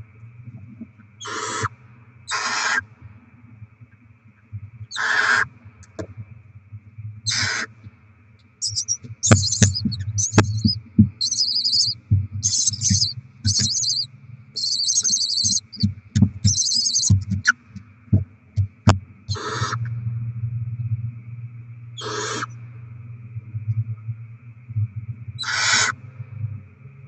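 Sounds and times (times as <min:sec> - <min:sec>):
steady low hum: 0:00.0 - 0:27.0
owl chicks hissing screeches: 0:01.2 - 0:01.7, 0:02.3 - 0:02.8, 0:04.9 - 0:05.5, 0:07.3 - 0:07.7, 0:08.6 - 0:15.8, 0:16.4 - 0:17.6, 0:19.3 - 0:19.8, 0:22.0 - 0:22.6, 0:25.4 - 0:25.9
owl rasping call: 0:01.2 - 0:01.7, 0:02.3 - 0:02.8, 0:04.9 - 0:05.5, 0:07.3 - 0:07.7, 0:08.6 - 0:17.6, 0:19.3 - 0:19.9, 0:22.0 - 0:22.6, 0:25.4 - 0:26.0.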